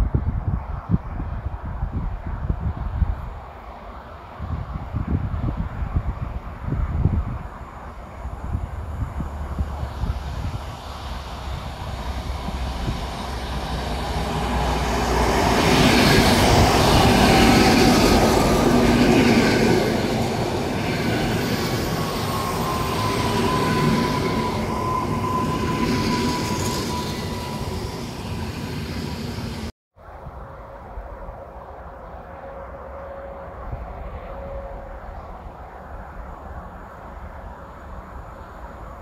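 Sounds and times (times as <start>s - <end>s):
train wheel rumble: 3.0s - 29.7s
high-pitched wheel squeal: 20.9s - 29.7s.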